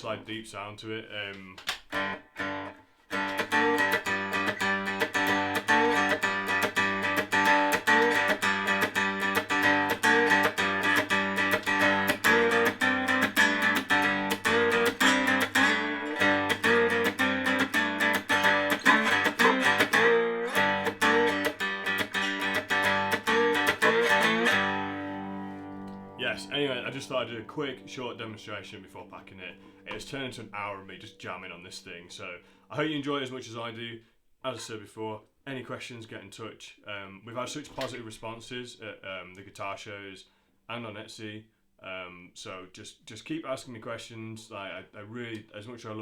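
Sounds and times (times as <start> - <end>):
cigar box guitar playing: 1.8 - 31.6.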